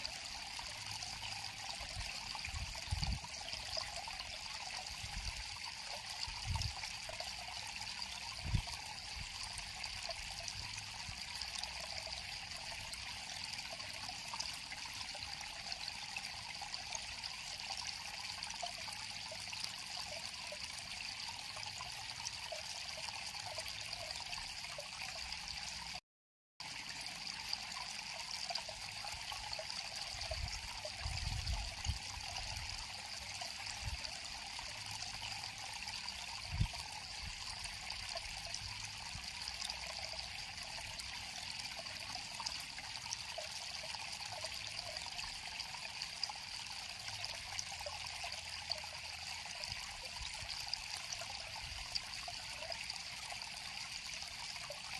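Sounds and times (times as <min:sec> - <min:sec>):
river water flowing: 0:26.6 - 0:54.9.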